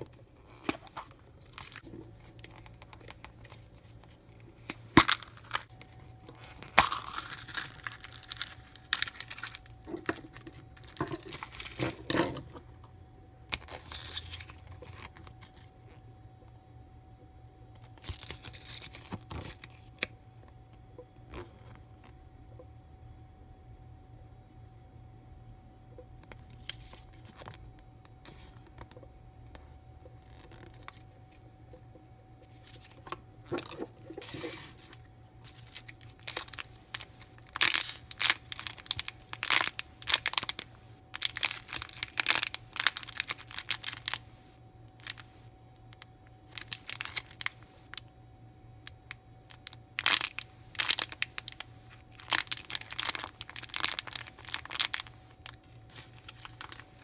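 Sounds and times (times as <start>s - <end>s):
faint steady hum: 0.0s - 57.0s
plastic packaging crinkling and tearing: 0.5s - 12.6s, 13.5s - 15.7s, 17.8s - 19.9s, 32.5s - 44.3s, 45.0s - 48.0s, 48.8s - 57.0s.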